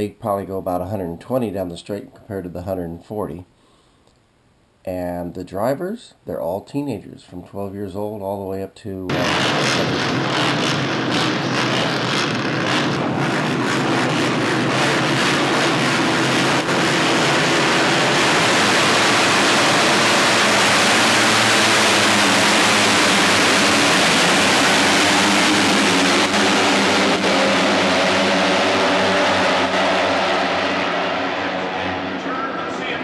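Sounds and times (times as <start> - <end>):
racing motorcycle engines: 9.1 - 33.0.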